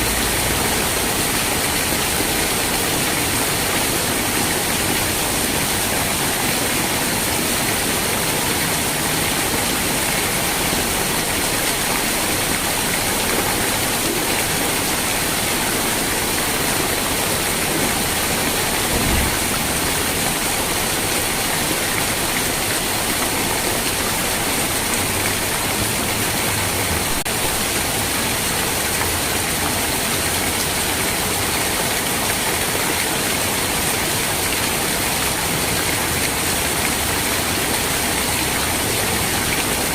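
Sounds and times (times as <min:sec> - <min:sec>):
heavy rain: 0:00.0 - 0:39.9
low thump: 0:18.8 - 0:19.8.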